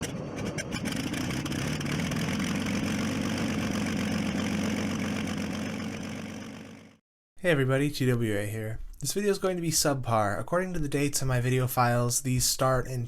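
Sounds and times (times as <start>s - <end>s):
engine idling: 0.4s - 7.0s.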